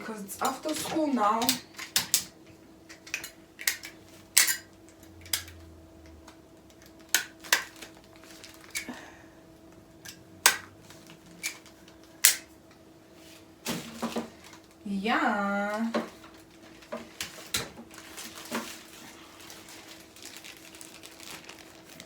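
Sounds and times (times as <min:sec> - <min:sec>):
paper packs handled on a table: 0:07.0 - 0:08.9, 0:15.8 - 0:22.0.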